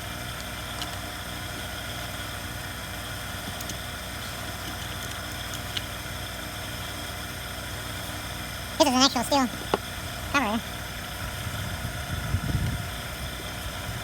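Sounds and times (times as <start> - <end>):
low machine hum with hiss: 0.0 - 14.0
faint clicks of small parts: 0.3 - 1.2, 3.4 - 6.1.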